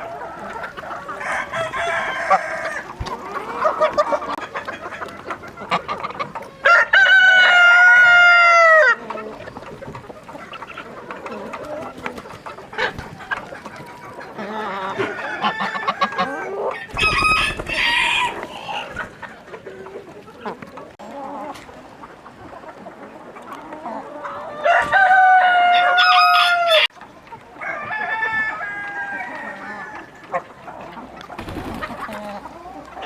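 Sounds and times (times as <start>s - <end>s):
chickens clucking: 0.0s - 33.0s
rooster crowing: 1.2s - 2.9s, 14.9s - 18.9s, 24.6s - 26.9s, 27.6s - 30.0s.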